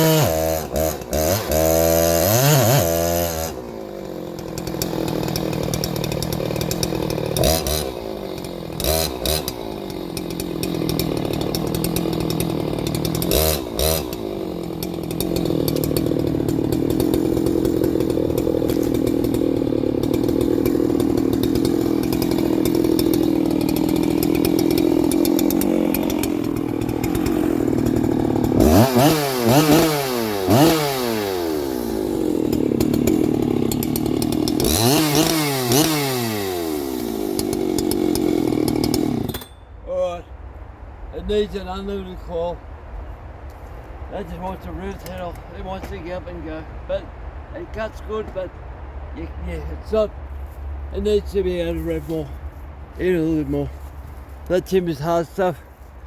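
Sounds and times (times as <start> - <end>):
chainsaw cutting wood: 0.0 - 39.6, 44.8 - 46.0.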